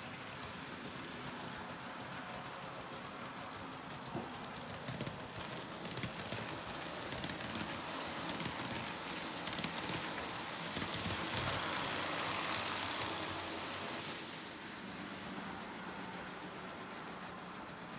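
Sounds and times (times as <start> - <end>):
model train whirring rumble: 0.0 - 17.9
wheels clicking on rails: 0.0 - 17.9.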